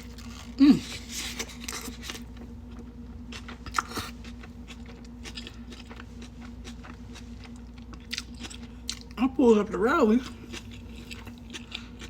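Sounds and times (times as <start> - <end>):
steady low hum: 0.0 - 12.0
chewing with wet mouth clicks: 2.7 - 9.2, 10.2 - 12.0.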